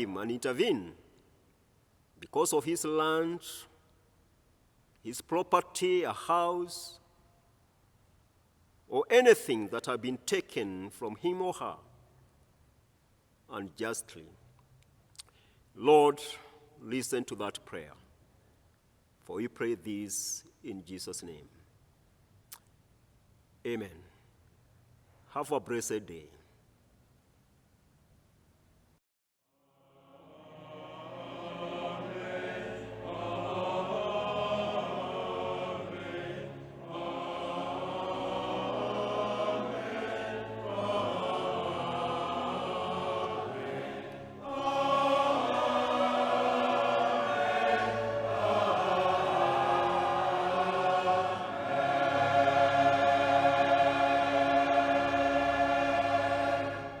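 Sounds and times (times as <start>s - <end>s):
choir singing: 0.0s - 0.6s, 29.7s - 57.0s.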